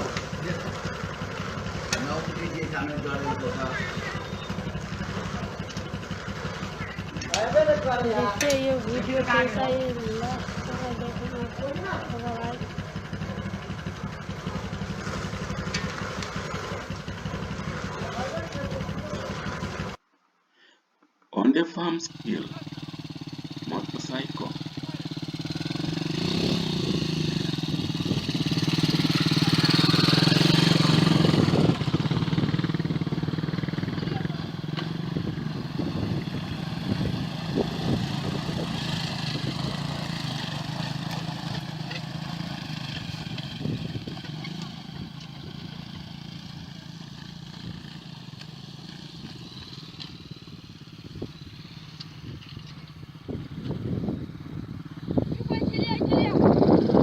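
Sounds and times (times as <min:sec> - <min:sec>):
motorcycle engine running: 0:00.0 - 0:20.0, 0:22.0 - 0:57.0.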